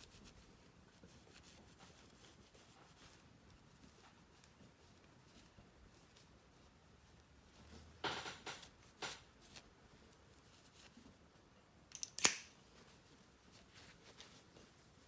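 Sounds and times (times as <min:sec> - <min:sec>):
sharp clicks from prop: 0:11.9 - 0:12.5.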